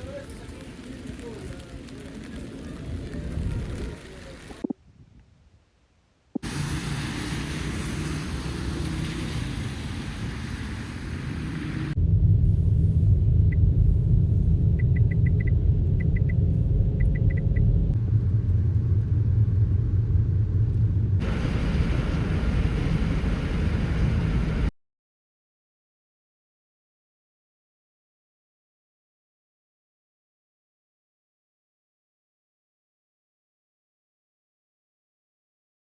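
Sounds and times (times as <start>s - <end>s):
heavy low rumble: 9.4s - 24.7s.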